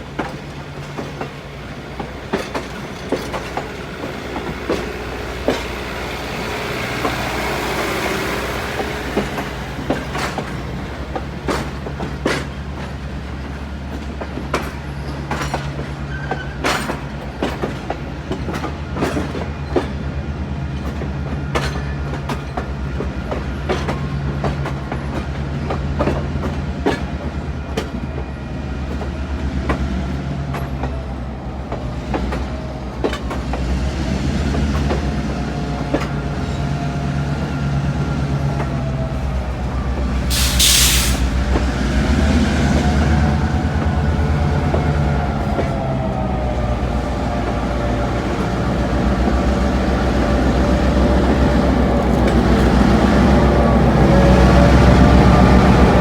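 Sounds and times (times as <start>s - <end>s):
wheels clicking over rail joints: 0.0s - 28.3s
locomotive engine rumbling: 0.0s - 56.0s.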